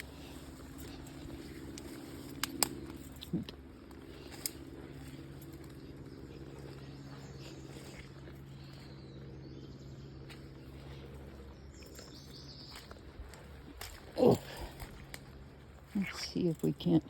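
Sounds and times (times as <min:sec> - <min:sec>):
faint low engine drone: 0:00.0 - 0:17.0
outdoor ambience: 0:00.0 - 0:17.0
light ticks: 0:01.7 - 0:03.3.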